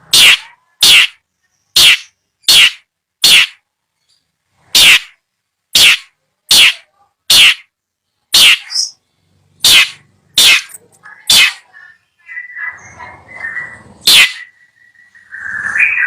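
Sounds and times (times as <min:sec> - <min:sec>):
bird harsh calls: 0:00.0 - 0:03.6, 0:04.8 - 0:05.2, 0:05.8 - 0:07.7, 0:08.3 - 0:09.0, 0:09.6 - 0:16.0
soft bird twittering: 0:08.4 - 0:16.0.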